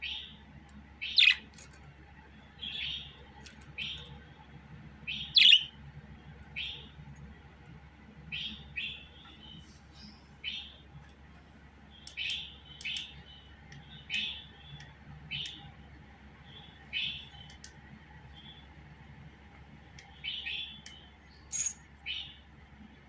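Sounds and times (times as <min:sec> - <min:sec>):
budgerigar chirping: 0:01.0 - 0:01.5, 0:05.1 - 0:05.8, 0:12.0 - 0:15.7.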